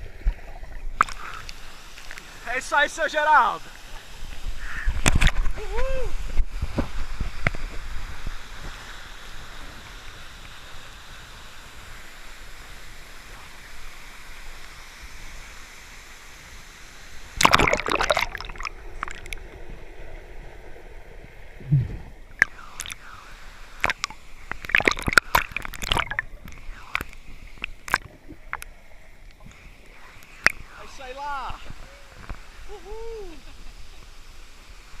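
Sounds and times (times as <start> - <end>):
loud burst of splashing: 17.4 - 19.3
small splashes and knocks: 17.4 - 19.4, 23.8 - 26.3
low thump: 21.6 - 22.1.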